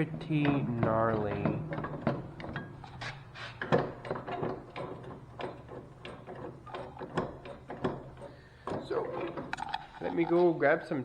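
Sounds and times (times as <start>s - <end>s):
metal lever clunking and rattling: 0.0s - 10.6s.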